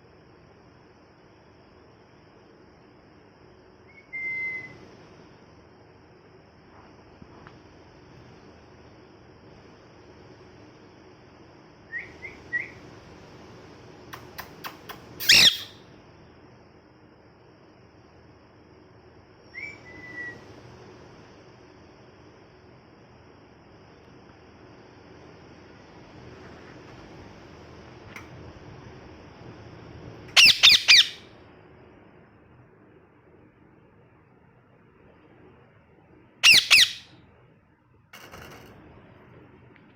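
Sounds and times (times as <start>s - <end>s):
small click: 14.1s - 15.1s, 28.1s - 28.4s
parrot chirping: 14.2s - 15.8s, 30.3s - 31.3s, 36.4s - 37.2s.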